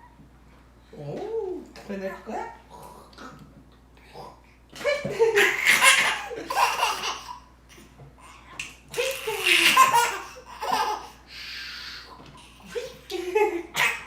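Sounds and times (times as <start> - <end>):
baby laughing: 4.8 - 7.5, 8.9 - 14.0.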